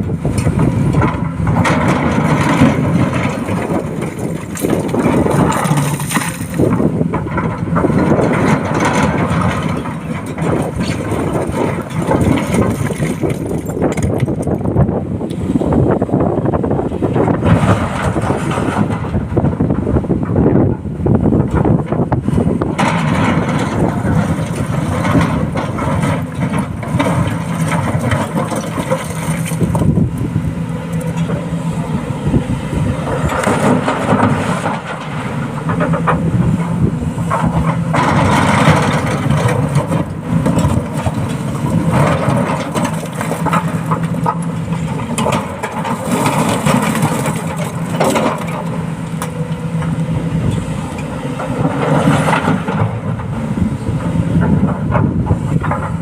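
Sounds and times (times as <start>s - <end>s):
excavator diesel engine: 0.0s - 56.0s
rock knocking and clattering: 0.4s - 14.7s, 22.7s - 30.0s, 37.3s - 49.4s.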